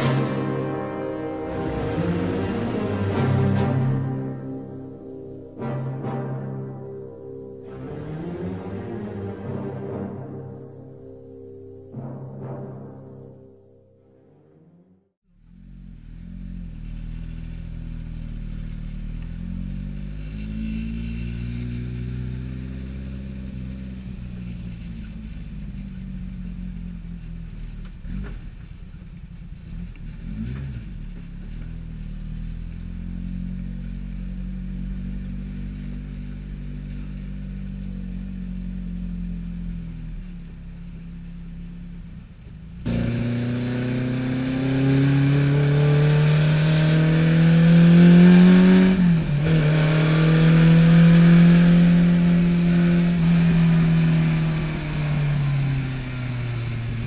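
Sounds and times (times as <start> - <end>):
car engine idling and revving: 0.0 - 13.8, 15.1 - 57.0
engine pulling hard at high revs: 15.4 - 57.0.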